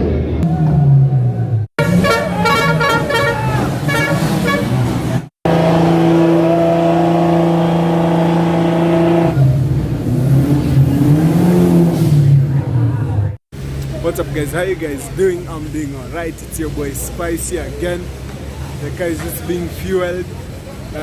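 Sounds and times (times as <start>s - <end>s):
car engine revving: 0.0s - 19.1s
car horn: 1.8s - 4.9s.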